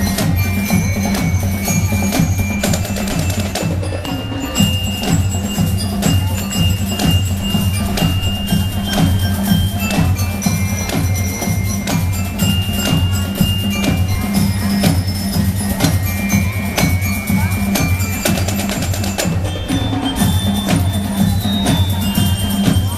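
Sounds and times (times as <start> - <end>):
high bell-like notes: 0.0 - 22.9
marching band drums: 0.0 - 22.9
low repeating pulse: 4.6 - 16.6.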